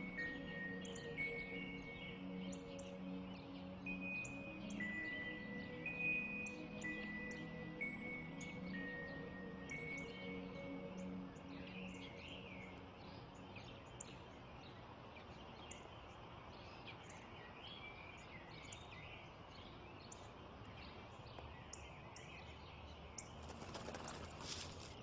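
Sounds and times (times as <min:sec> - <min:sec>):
outdoor background noise: 0:00.0 - 0:25.0
small birds chirping: 0:00.0 - 0:25.0
rustle: 0:13.9 - 0:25.0.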